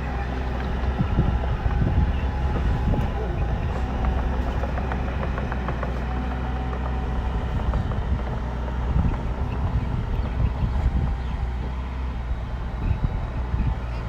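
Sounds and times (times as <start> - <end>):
bulldozer diesel engine running: 0.0 - 14.0
knocks: 2.5 - 9.3.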